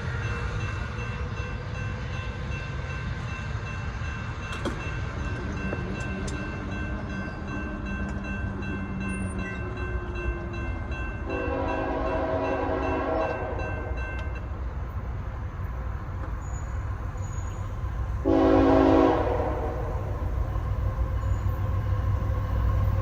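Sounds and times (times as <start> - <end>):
freight train rumbling past: 0.0 - 23.0
locomotive horn blasts: 11.2 - 14.0, 18.2 - 20.0.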